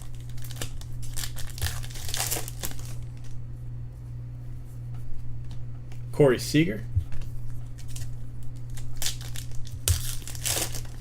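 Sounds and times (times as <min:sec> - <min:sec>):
foil wrapper crinkling: 0:00.0 - 0:03.4, 0:07.1 - 0:11.0
low hum: 0:00.0 - 0:11.0.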